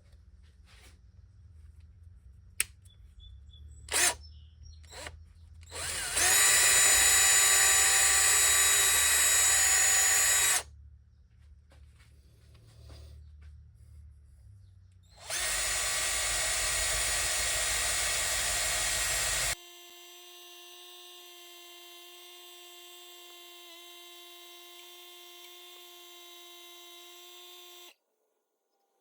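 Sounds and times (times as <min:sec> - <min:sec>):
power tool grinding: 0:03.9 - 0:04.2, 0:04.9 - 0:10.7, 0:15.2 - 0:19.6
power tool whine: 0:03.9 - 0:04.2, 0:04.9 - 0:10.7, 0:15.2 - 0:28.0.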